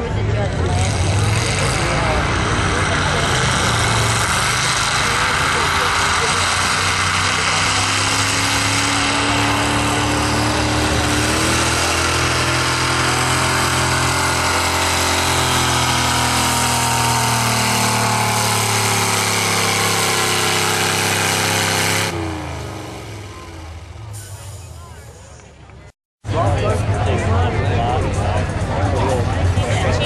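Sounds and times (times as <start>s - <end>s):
truck engine running hard: 0.0s - 30.0s.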